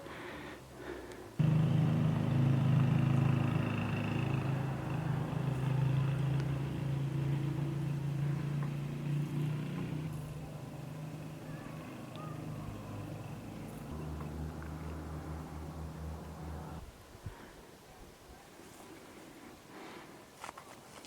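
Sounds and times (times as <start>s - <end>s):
engine running: 1.4s - 16.9s.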